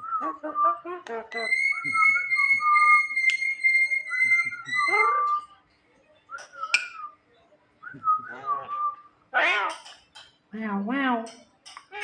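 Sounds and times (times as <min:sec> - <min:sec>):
myna whistling: 0:00.0 - 0:05.5, 0:06.4 - 0:07.2.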